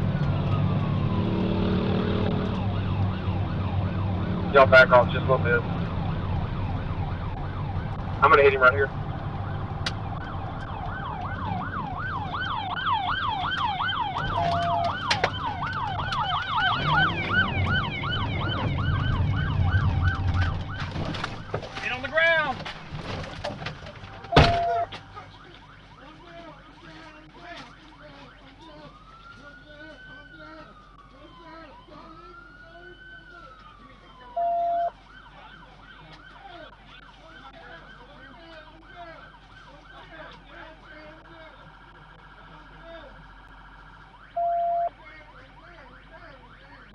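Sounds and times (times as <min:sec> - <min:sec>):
higher siren: 0:00.0 - 0:22.1, 0:24.1 - 0:46.9
police siren yelping: 0:00.0 - 0:22.6, 0:23.9 - 0:46.9
loud steady beep: 0:14.4 - 0:15.0, 0:24.3 - 0:25.5, 0:34.4 - 0:35.0, 0:44.3 - 0:45.0.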